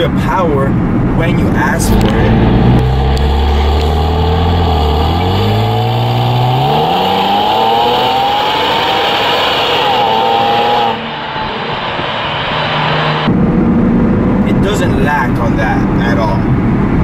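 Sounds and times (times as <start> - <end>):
car engine accelerating hard: 1.0 - 14.6.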